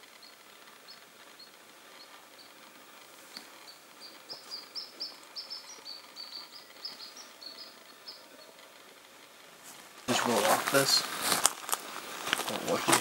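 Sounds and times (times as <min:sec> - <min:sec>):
small songbird chirping: 0:00.0 - 0:09.1
footsteps on dry forest ground: 0:00.6 - 0:08.3, 0:09.6 - 0:13.0.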